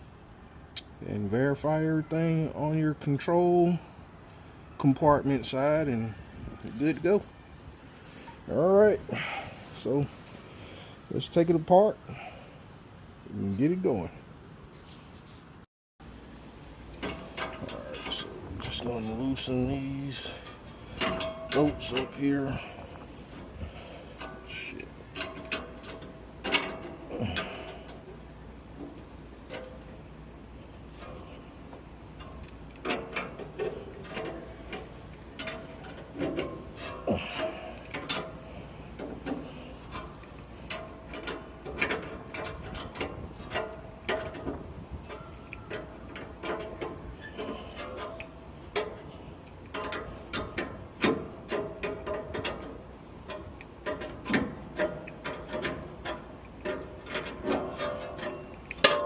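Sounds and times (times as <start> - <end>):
hand tools clicking on metal bolts: 16.8 - 30.1, 30.9 - 59.0.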